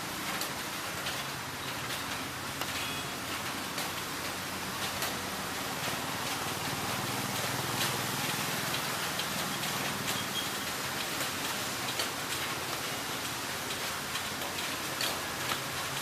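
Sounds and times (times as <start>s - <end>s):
rain hissing: 0.0s - 16.0s.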